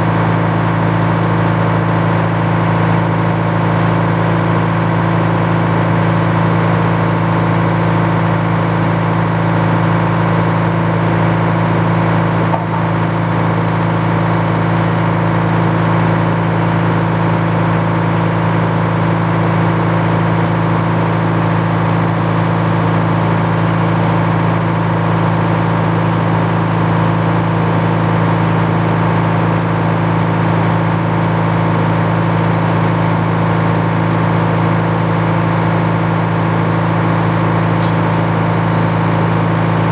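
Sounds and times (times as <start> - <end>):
engine droning: 0.0 - 39.9.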